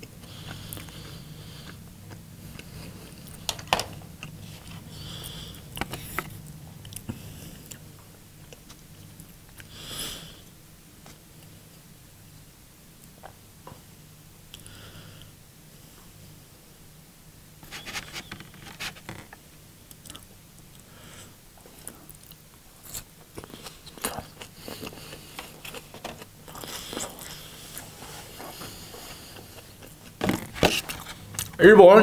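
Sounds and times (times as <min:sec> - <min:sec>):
person chewing crunchy food: 0:00.0 - 0:03.5, 0:21.8 - 0:31.6
faint low hum: 0:00.0 - 0:32.0.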